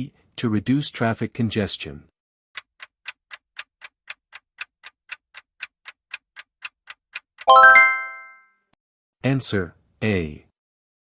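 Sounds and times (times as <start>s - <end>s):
clock-like ticking: 2.6s - 7.6s
bright ringing chime: 7.5s - 8.4s.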